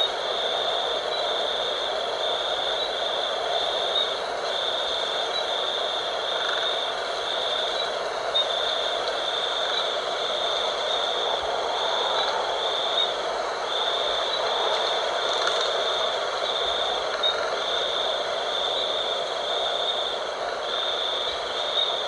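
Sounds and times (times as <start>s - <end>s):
wind blowing: 0.0s - 22.0s.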